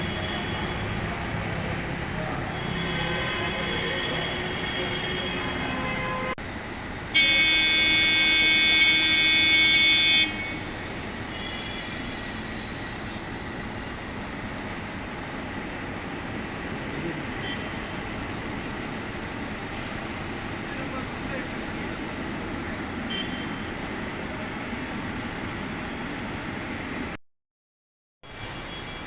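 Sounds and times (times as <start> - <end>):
traffic hum: 0.0 - 27.2
vehicle horn blast: 2.5 - 6.4, 7.2 - 10.7.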